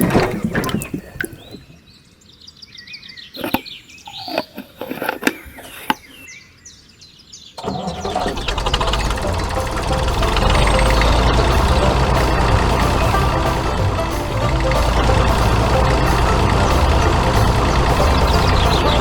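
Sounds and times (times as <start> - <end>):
birds chirping: 0.0 - 19.0
engine running: 7.6 - 19.0.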